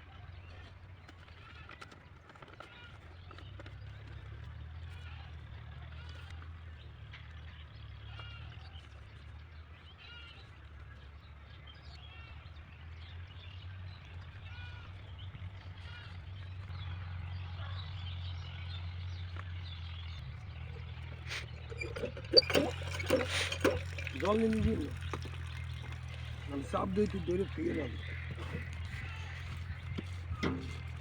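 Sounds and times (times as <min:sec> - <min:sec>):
birds chirping: 0:17.5 - 0:31.0.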